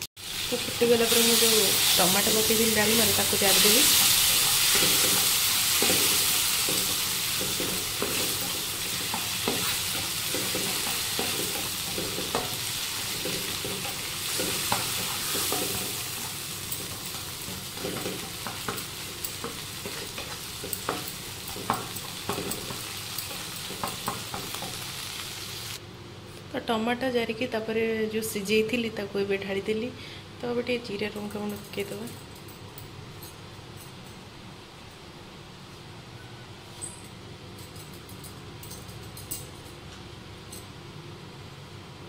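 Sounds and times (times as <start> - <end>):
food sizzling in hot oil: 0.2 - 25.8.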